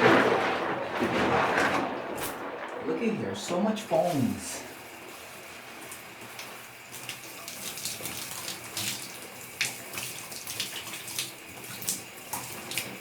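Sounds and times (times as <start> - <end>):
water sloshing in a tub: 4.0 - 13.0.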